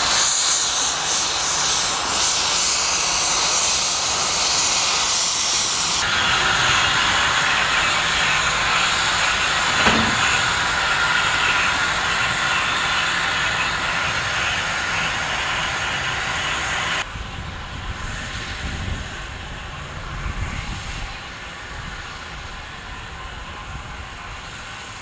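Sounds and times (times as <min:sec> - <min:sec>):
steam locomotive hissing: 0:00.0 - 0:17.0
low locomotive rumble: 0:06.0 - 0:18.0.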